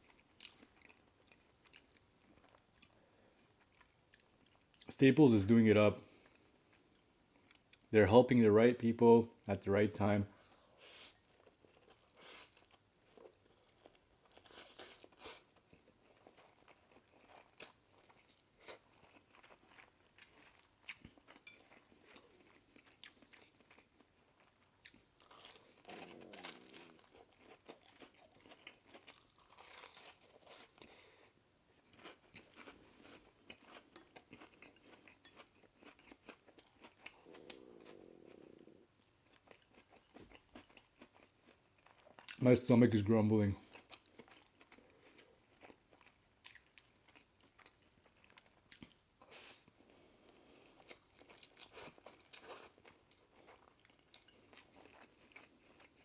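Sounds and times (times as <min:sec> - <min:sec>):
chewing with wet mouth clicks: 0:13.8 - 0:30.9, 0:31.8 - 0:38.4, 0:39.0 - 0:42.4.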